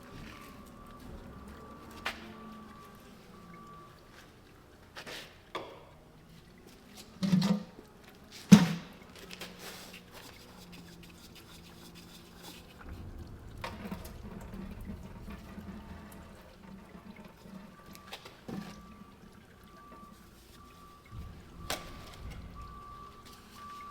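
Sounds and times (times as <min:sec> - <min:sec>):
low liquid-like sound: 0:00.0 - 0:05.0, 0:10.0 - 0:23.9.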